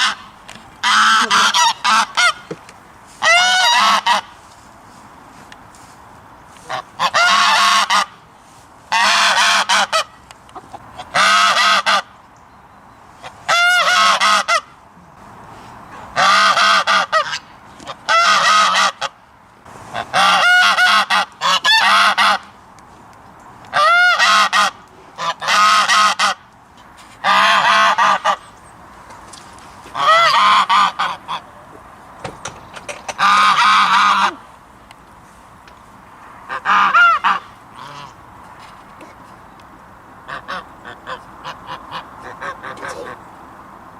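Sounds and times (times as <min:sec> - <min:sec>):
goose honking: 0:00.0 - 0:02.5, 0:03.2 - 0:04.4, 0:06.6 - 0:08.2, 0:08.9 - 0:12.1, 0:13.2 - 0:14.8, 0:15.9 - 0:19.2, 0:19.9 - 0:22.5, 0:23.7 - 0:26.4, 0:27.2 - 0:28.4, 0:29.9 - 0:31.6, 0:33.1 - 0:34.4, 0:36.5 - 0:38.2, 0:40.2 - 0:43.2.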